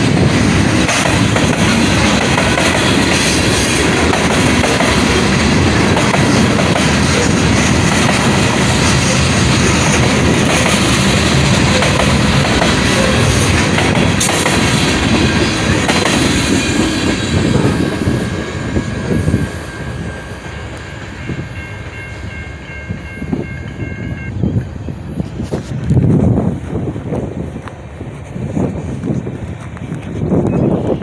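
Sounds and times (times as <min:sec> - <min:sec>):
train wheels on rails: 0:00.0 - 0:31.0
steady high tones: 0:14.6 - 0:25.3.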